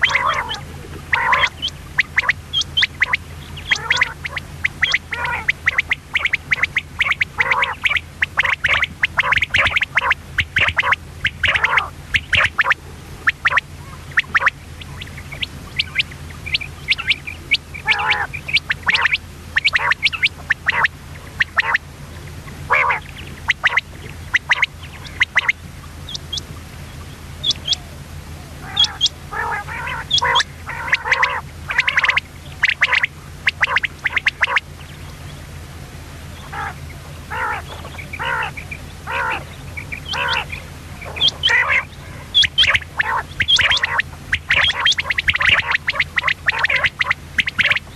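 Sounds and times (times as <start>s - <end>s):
quail calling: 0.0s - 47.9s
steady low hum: 0.0s - 47.9s.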